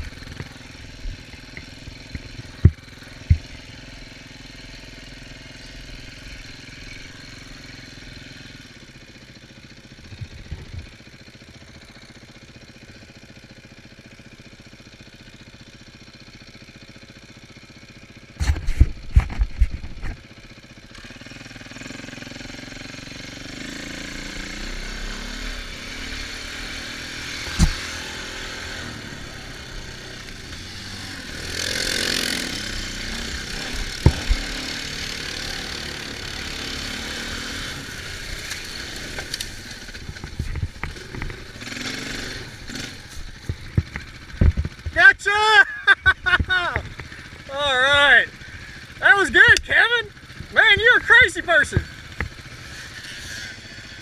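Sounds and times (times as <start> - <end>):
off-road vehicle engines running: 0.0 - 54.0
sharp knocks: 33.9 - 34.7.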